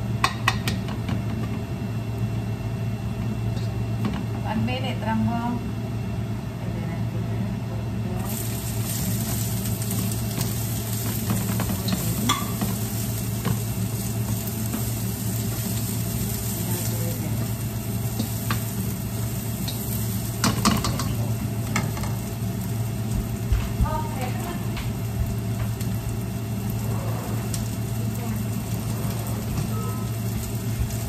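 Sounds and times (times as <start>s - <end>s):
steady low hum: 0.0s - 31.0s
food sizzling in hot oil: 8.2s - 31.0s.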